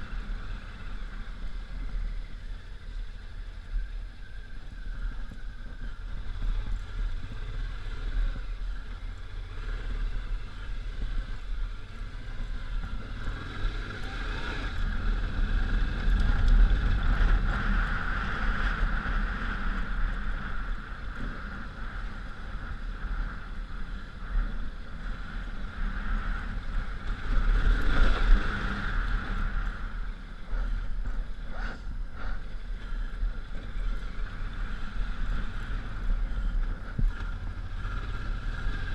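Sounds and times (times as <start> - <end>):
motorcycle engine rumbling: 0.0 - 38.9.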